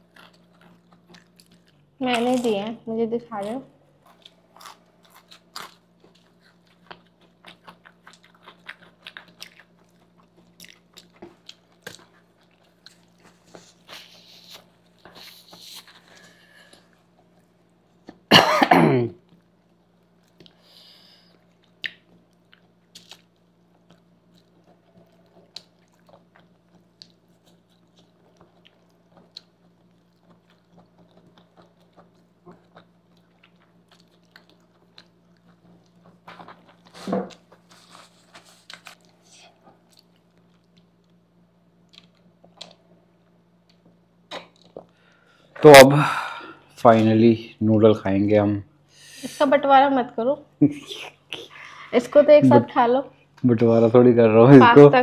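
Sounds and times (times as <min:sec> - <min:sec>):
chewing crisp chips: 0:00.0 - 0:02.6, 0:03.3 - 0:18.2, 0:19.2 - 0:43.0
faint low hum: 0:00.0 - 0:55.0
throat sound like a cough: 0:18.3 - 0:19.2.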